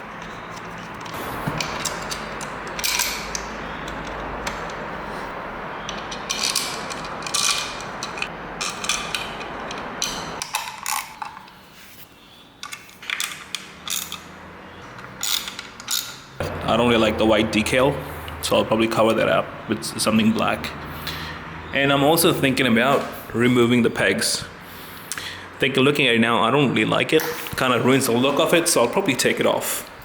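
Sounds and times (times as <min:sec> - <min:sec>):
steady background noise: 0:00.0 - 0:30.0.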